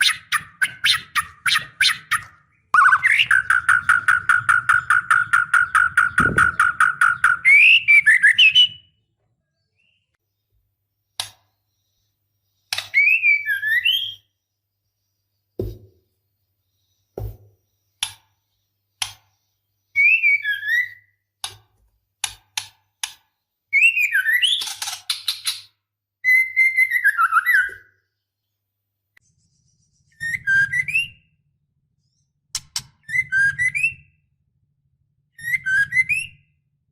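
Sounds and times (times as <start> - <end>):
sharp bird clicking notes: 0.0 - 7.8, 32.6 - 33.0
bird whistled calls: 0.0 - 8.9, 12.8 - 14.3, 19.9 - 21.2, 26.2 - 28.0, 30.0 - 31.3, 33.0 - 34.2, 35.4 - 36.6.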